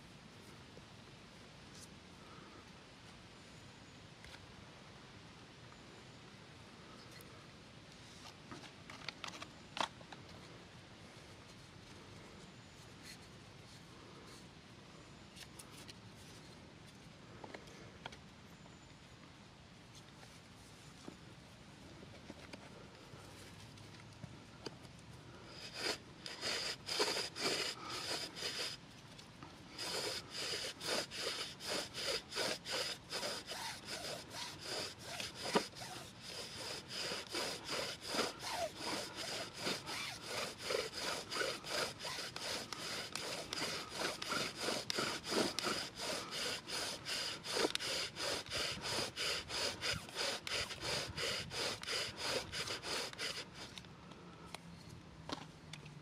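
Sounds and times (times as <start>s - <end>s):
back-and-forth strokes on wood: 25.5s - 28.8s, 29.6s - 53.8s.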